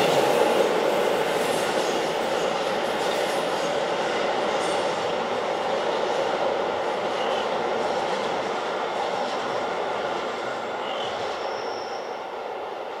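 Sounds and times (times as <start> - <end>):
train rumbling: 0.0 - 13.0
faint high squeals: 10.8 - 12.3.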